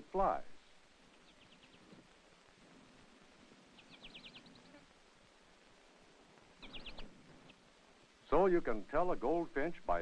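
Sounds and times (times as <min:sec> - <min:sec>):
steady hiss: 0:00.0 - 0:10.0
bird chirping runs: 0:00.7 - 0:02.1, 0:03.5 - 0:04.9, 0:06.4 - 0:08.5.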